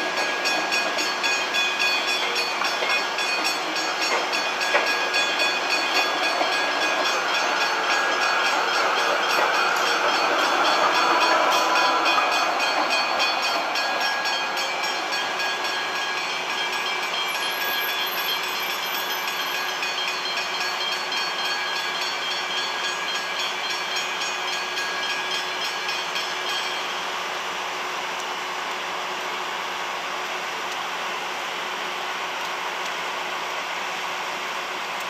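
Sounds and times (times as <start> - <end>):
electric train passing: 0.0 - 35.0.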